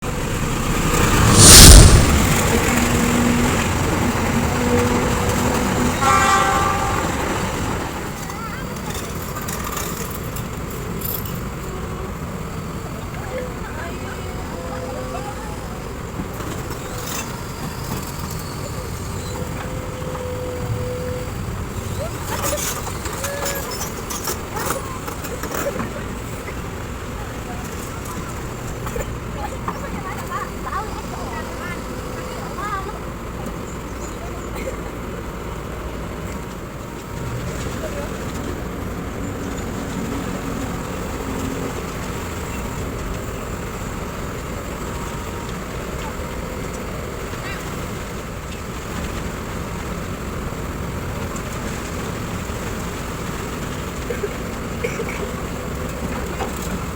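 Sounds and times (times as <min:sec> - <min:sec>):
excavator diesel engine running: 0:00.0 - 0:56.9
steady whine: 0:00.1 - 0:05.6.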